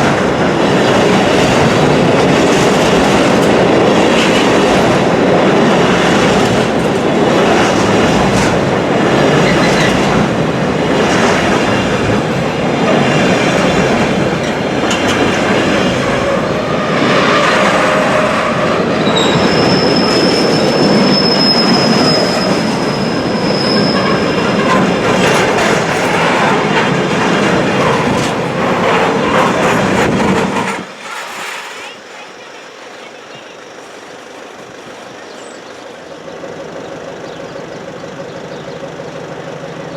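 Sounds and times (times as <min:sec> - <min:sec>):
train wheels clattering over rail joints: 0:00.0 - 0:32.3
high wheel squeal: 0:09.2 - 0:10.4, 0:15.8 - 0:27.0, 0:30.4 - 0:32.8.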